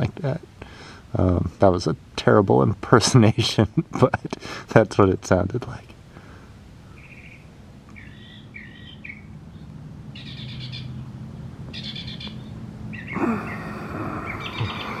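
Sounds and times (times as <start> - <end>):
faint low hum: 0.0 - 15.0
birds chirping: 6.1 - 15.0
rapid high bird notes: 6.9 - 11.1, 11.7 - 15.0.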